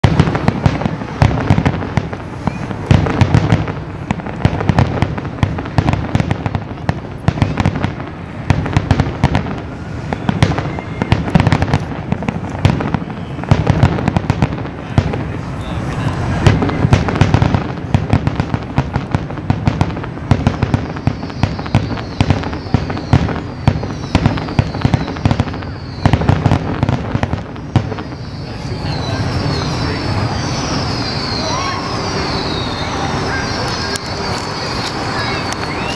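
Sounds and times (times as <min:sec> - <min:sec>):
fireworks booming and crackling: 0:00.0 - 0:35.9
high falling whistles: 0:02.4 - 0:02.8, 0:09.9 - 0:11.3, 0:20.4 - 0:26.3, 0:27.5 - 0:35.9.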